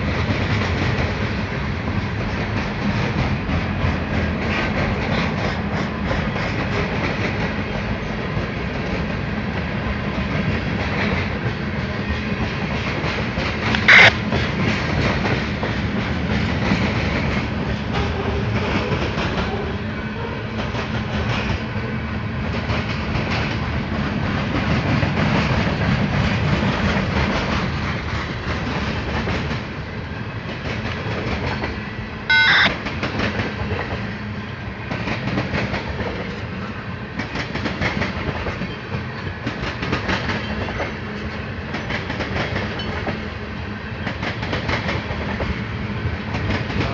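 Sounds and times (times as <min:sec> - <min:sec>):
railroad cars rumbling past: 0:00.0 - 0:46.9
wheels clickety-clack on rails: 0:00.0 - 0:46.9
sharp loud noises: 0:13.9 - 0:14.1, 0:32.3 - 0:32.7.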